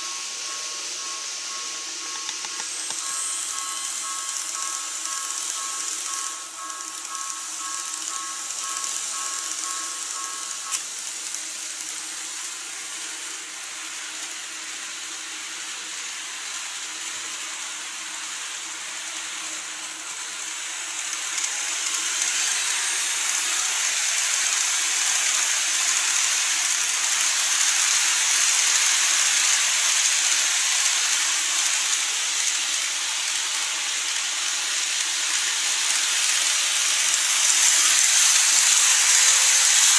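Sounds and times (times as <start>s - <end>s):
pulsing high tone: 0.0s - 10.8s
model train motor whirring: 0.0s - 39.9s
click: 2.2s - 3.2s.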